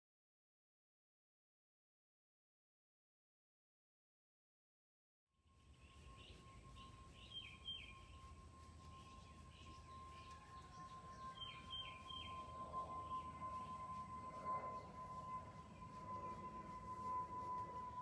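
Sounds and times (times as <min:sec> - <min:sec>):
faint steady high tone: 0:05.4 - 0:18.0
bird chirping: 0:05.6 - 0:18.0.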